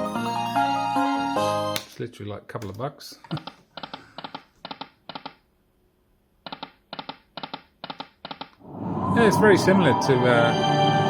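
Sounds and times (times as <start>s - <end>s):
poker machine beeping tones: 0.0s - 1.8s.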